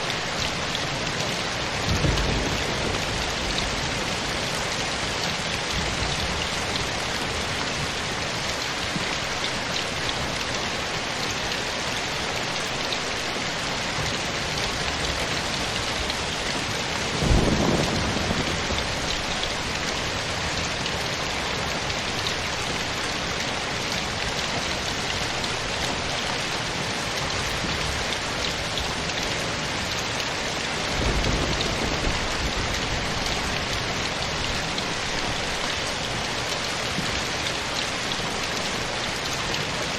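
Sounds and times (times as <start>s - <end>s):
steady rain falling: 0.0s - 39.9s
thunder rumbles: 1.7s - 8.0s, 14.7s - 21.0s, 30.6s - 35.8s.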